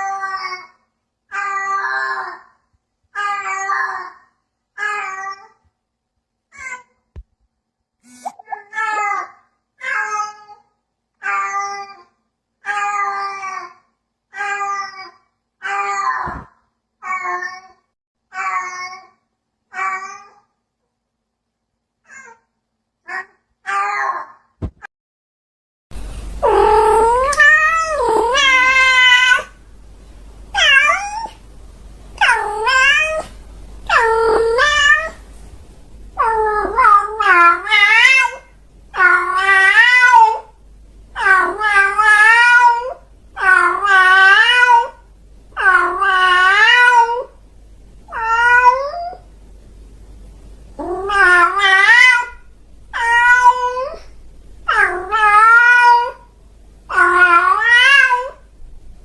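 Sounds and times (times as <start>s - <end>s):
cat meowing: 26.4s - 29.6s, 30.6s - 31.4s, 32.2s - 35.2s, 48.1s - 49.2s, 50.8s - 54.1s, 54.7s - 56.3s, 56.9s - 58.4s.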